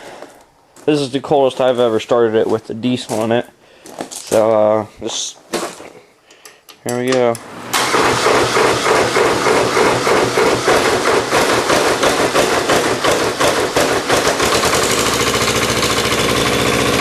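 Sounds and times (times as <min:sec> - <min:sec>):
diesel engine knocking and idling: 0:07.8 - 0:17.0.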